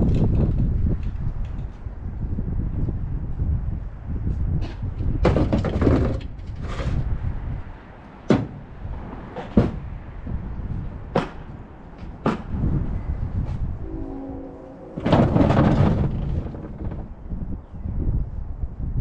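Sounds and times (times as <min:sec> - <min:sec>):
wind rumbling on microphone: 0:00.0 - 0:19.0
metal knocks and clanks: 0:05.2 - 0:07.0, 0:14.9 - 0:17.2
scraping rustles: 0:05.2 - 0:07.1, 0:14.5 - 0:17.2.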